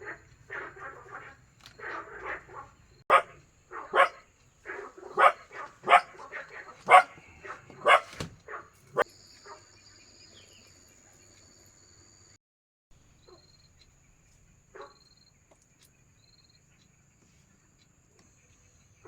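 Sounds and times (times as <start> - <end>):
animal making sharp calls: 0.0 - 9.0.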